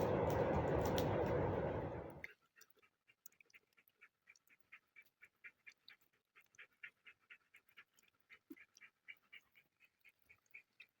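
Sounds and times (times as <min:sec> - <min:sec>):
dog panting quickly: 0:02.6 - 0:11.0.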